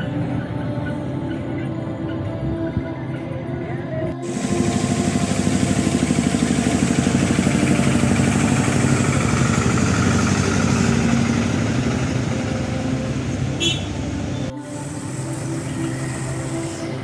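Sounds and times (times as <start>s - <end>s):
truck engine chugging: 4.2s - 17.0s.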